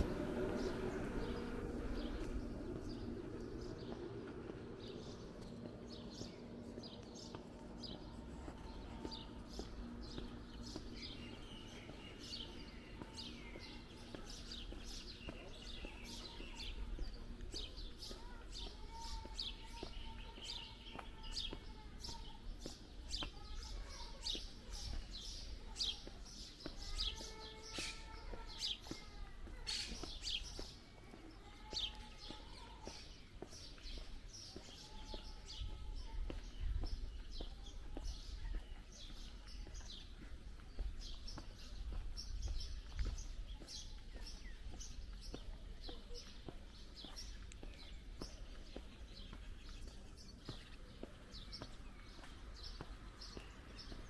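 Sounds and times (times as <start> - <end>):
low outdoor rumble: 0.0 - 24.1
small birds chirping: 0.0 - 54.0.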